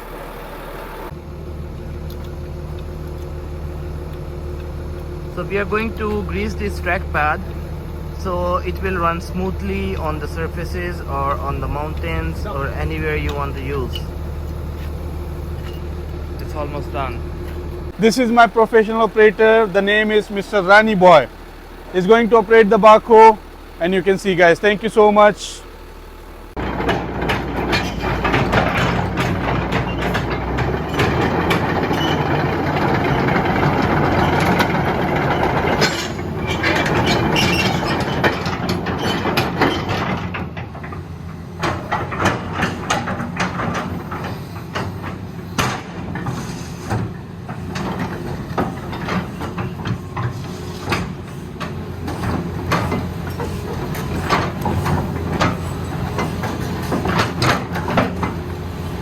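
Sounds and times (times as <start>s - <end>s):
excavator diesel engine running: 0.0s - 59.0s
sharp metal clanks and knocks: 26.6s - 41.0s, 41.6s - 58.4s.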